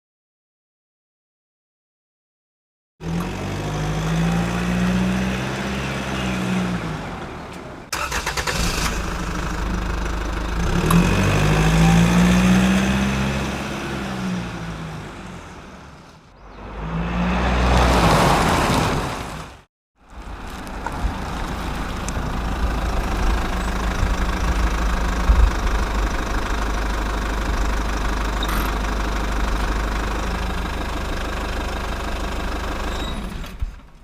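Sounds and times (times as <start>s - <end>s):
motorcycle engine revving: 7.9s - 15.4s.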